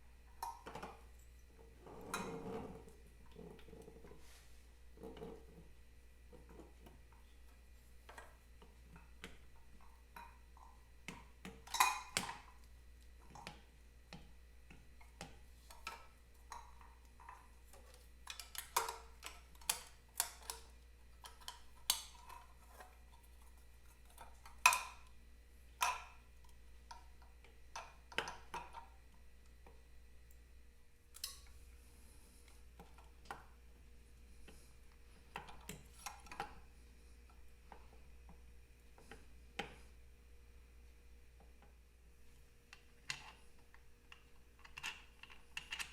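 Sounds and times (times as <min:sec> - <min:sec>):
steady low hum: 0:19.0 - 0:44.6.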